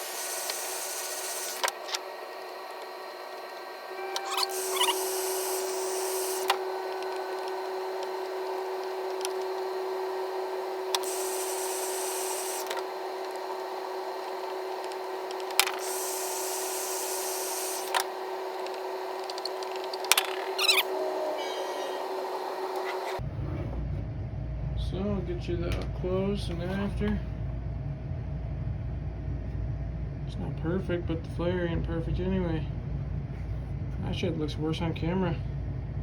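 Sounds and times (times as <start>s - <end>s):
hissing bursts: 0.0s - 1.6s, 4.3s - 6.6s, 11.0s - 12.8s, 15.8s - 18.0s
heat gun humming: 0.0s - 23.2s.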